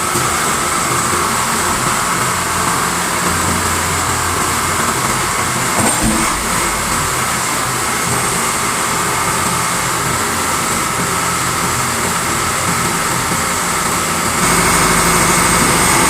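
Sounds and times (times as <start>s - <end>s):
short knock: 5.8s - 7.4s
hydraulic press running: 5.8s - 8.1s.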